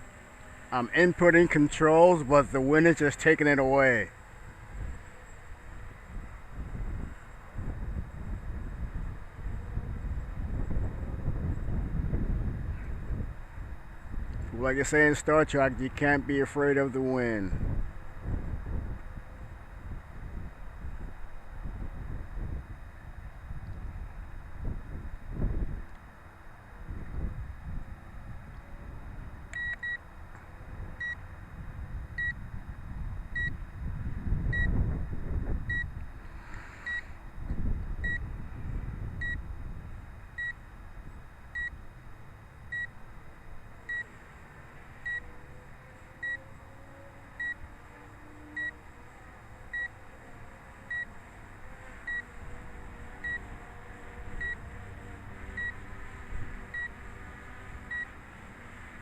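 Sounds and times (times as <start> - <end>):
wind buffeting microphone: 4.3 - 16.2, 17.4 - 26.0, 26.7 - 43.9.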